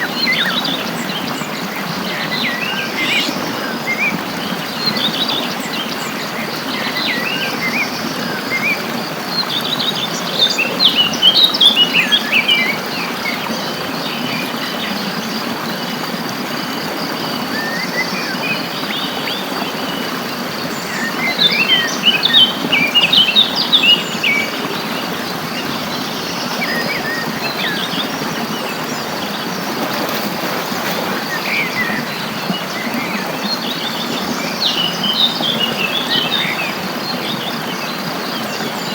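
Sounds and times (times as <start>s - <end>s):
songbirds chirping and singing: 0.0s - 15.0s.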